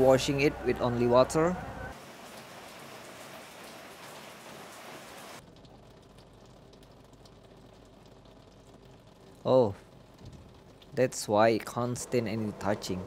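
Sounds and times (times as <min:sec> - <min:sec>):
rain hissing on a car: 0:01.9 - 0:13.0.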